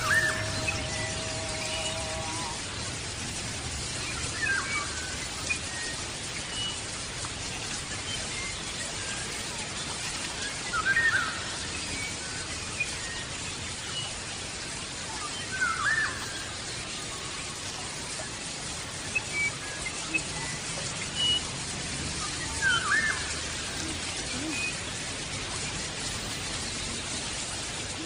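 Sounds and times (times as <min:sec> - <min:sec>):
faint bird chirps: 0:00.0 - 0:02.8, 0:18.9 - 0:21.4, 0:22.2 - 0:25.1
bird looping calls: 0:00.0 - 0:05.7, 0:22.2 - 0:28.0
steady hiss: 0:00.0 - 0:28.0.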